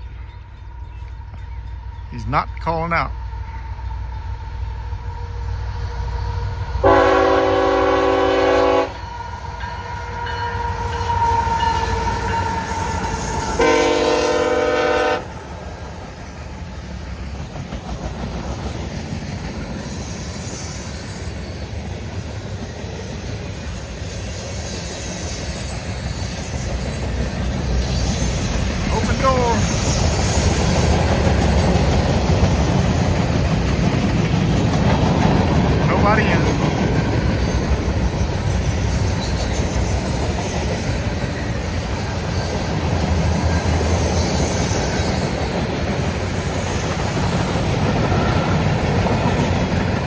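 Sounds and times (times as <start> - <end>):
train rumble and wheel noise: 0.0 - 50.0
locomotive air horn blasts: 6.8 - 9.1, 13.5 - 15.4.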